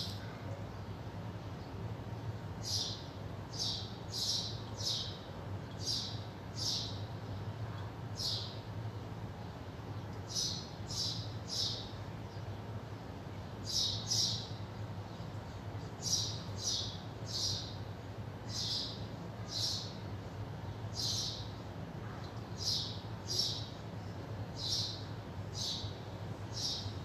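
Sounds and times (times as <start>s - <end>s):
steady low hum: 0.0s - 27.0s
small bird chirping: 24.6s - 27.0s.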